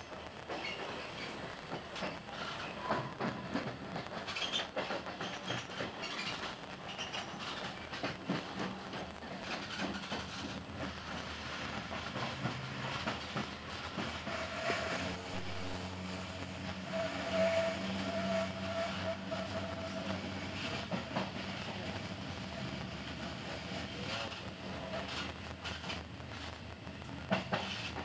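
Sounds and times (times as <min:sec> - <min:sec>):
train rumble with wheels clicking: 0:00.0 - 0:28.0
steady whine: 0:13.4 - 0:27.6.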